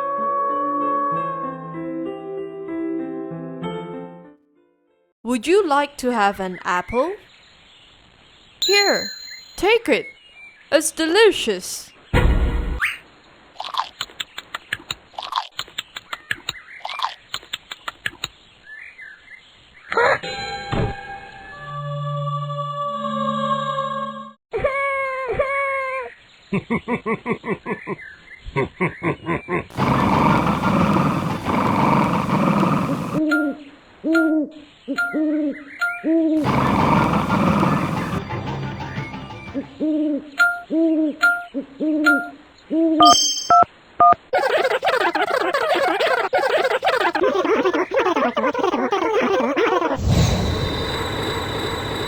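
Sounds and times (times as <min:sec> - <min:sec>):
owl hooting: 0:29.7 - 0:33.3, 0:34.0 - 0:38.2.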